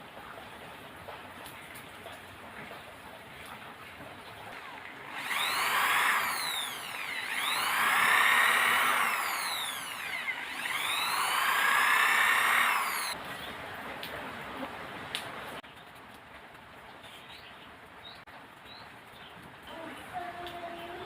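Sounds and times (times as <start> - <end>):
small electric motor whining: 4.6 - 13.2.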